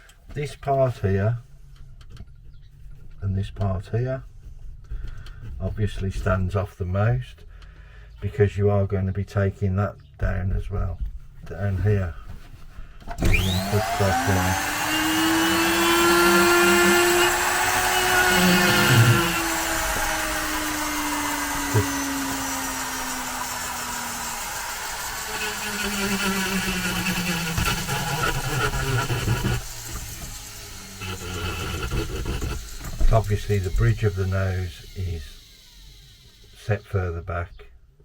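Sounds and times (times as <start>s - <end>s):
power carving tool cutting wood: 13.1s - 37.3s.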